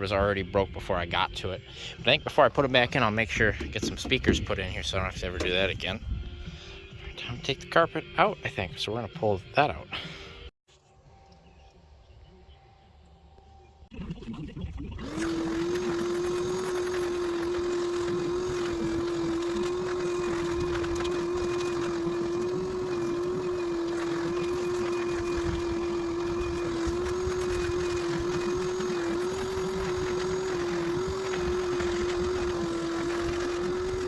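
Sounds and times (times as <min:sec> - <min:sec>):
carpet cleaner motor humming: 0:15.0 - 0:34.0.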